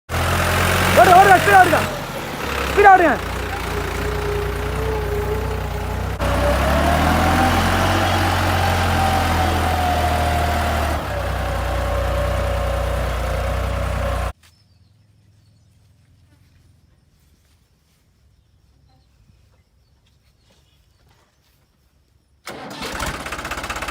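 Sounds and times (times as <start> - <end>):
tractor engine running: 0.1 - 14.4, 22.5 - 23.9.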